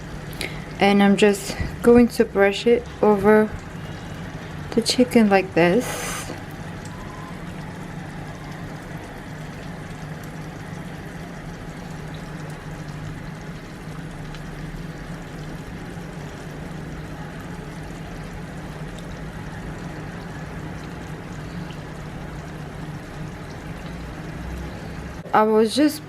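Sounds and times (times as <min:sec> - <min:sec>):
constant low hum: 0:00.0 - 0:26.0
even hiss: 0:05.8 - 0:06.4.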